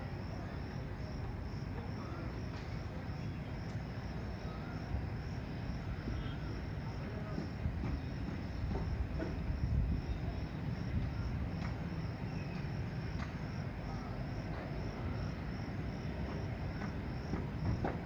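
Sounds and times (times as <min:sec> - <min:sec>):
insect chirping: 0:08.1 - 0:17.8.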